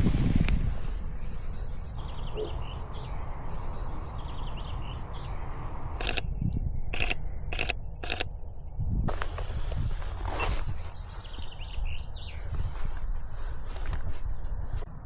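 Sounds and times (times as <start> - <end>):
low rumble of wind: 0.0 - 15.0
songbirds chirping: 0.0 - 15.0
camera shutter clicks: 5.9 - 6.2, 6.9 - 8.3.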